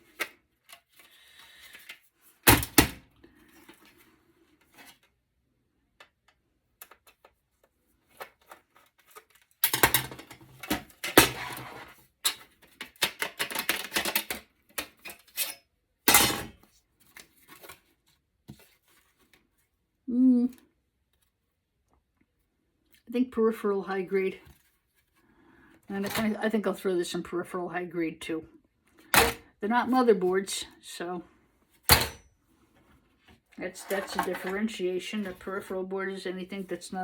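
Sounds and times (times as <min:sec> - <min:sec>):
server parts clattering and knocking: 0:12.3 - 0:15.1, 0:31.9 - 0:32.2.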